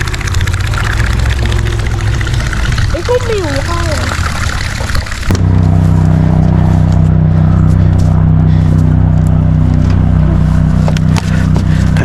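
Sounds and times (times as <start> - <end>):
boat motor droning: 0.0 - 12.0.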